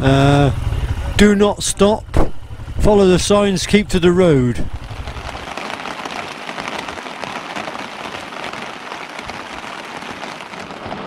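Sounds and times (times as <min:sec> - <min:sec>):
heavy rain on tent fabric: 0:04.7 - 0:11.0.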